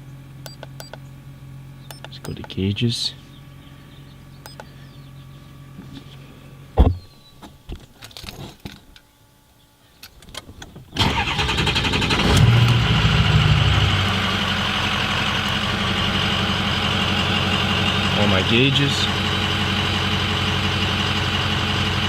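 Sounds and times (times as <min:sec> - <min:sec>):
faint hum: 0:00.0 - 0:11.0
clicks: 0:04.4 - 0:04.7
diesel engine starting and idling: 0:11.0 - 0:22.0.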